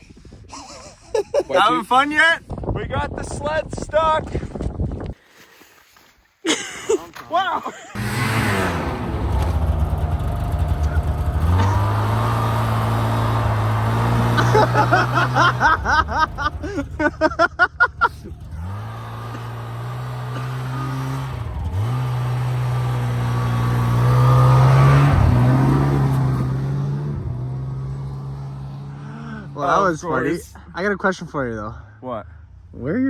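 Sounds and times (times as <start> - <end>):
snowmobile engine revving: 7.9 - 31.3.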